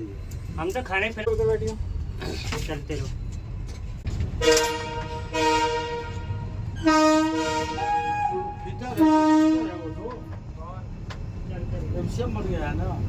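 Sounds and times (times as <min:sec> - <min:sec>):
locomotive horn blasts: 0:04.4 - 0:10.3.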